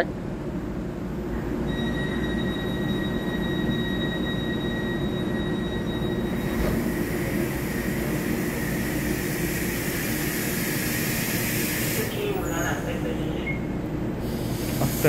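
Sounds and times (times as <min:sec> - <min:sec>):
train wheels rumbling on rail: 0:05.2 - 0:15.0
train hiss: 0:06.7 - 0:13.0, 0:14.2 - 0:15.0.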